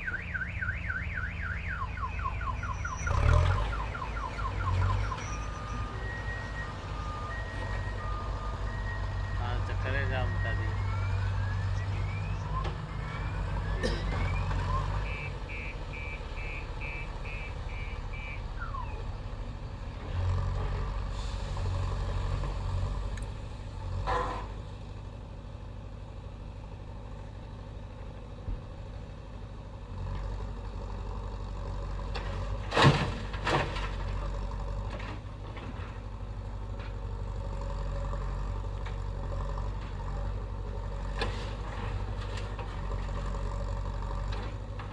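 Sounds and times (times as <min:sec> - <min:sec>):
reversing alarm beeps: 0:00.0 - 0:19.0
diesel engine working: 0:00.0 - 0:44.9.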